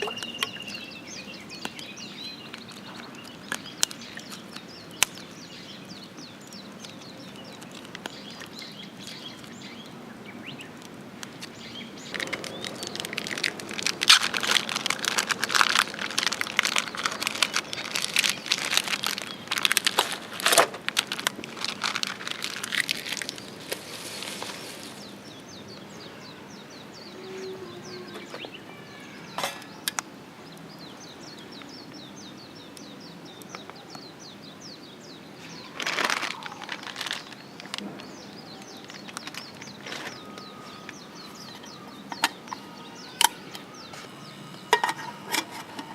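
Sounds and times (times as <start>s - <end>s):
birds chirping: 0.0s - 45.9s
close rustling and crackling: 1.5s - 26.0s, 34.8s - 45.9s.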